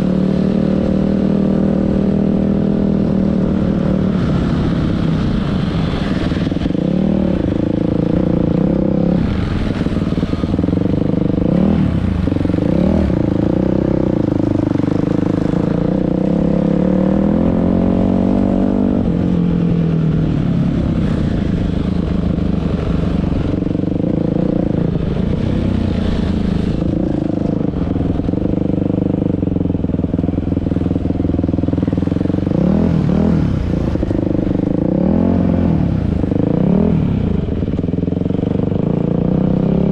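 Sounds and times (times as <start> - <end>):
dirt bike engine revving: 5.7 - 19.1.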